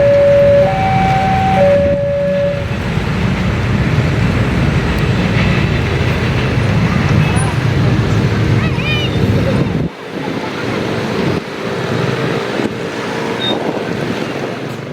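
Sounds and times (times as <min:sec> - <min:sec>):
two-note high-low tone: 0:00.0 - 0:02.8
train rumbling: 0:00.0 - 0:14.9.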